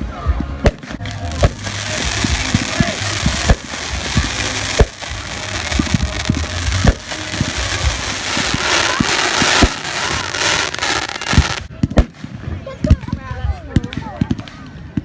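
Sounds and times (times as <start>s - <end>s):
fireworks booming and popping: 0.6s - 15.0s
steady noisy hiss: 0.8s - 11.7s.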